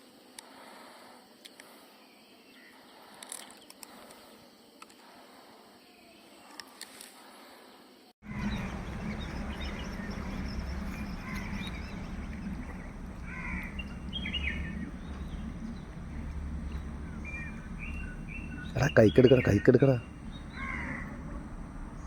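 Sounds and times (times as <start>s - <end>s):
birds chirping and calling: 8.2s - 22.0s
low rumble: 8.2s - 22.0s.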